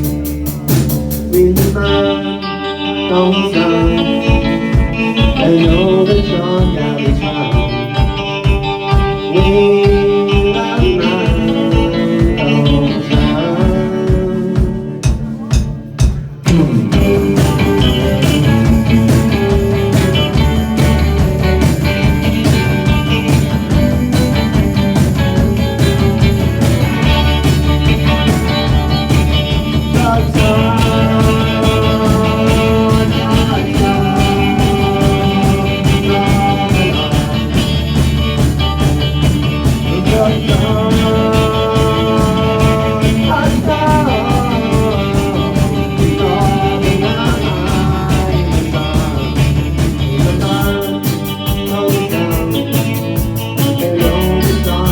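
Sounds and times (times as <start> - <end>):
bending lead guitar notes: 0.0 - 54.9
rock band playing: 0.0 - 54.9.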